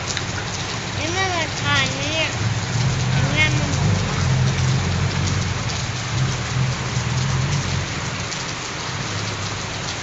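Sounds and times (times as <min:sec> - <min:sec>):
heavy rain splashing: 0:00.0 - 0:10.0
low rumble: 0:02.3 - 0:08.2.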